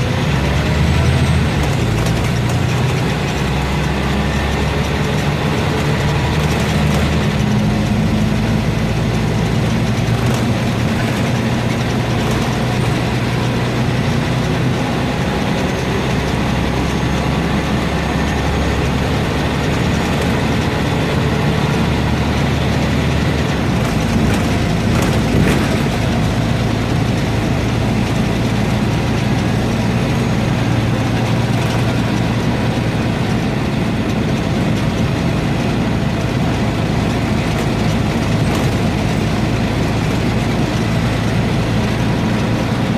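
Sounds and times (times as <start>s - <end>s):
bus diesel engine running: 0.0s - 42.9s
road noise: 0.0s - 42.9s
rattles: 6.0s - 14.4s, 22.2s - 27.6s, 37.2s - 40.8s.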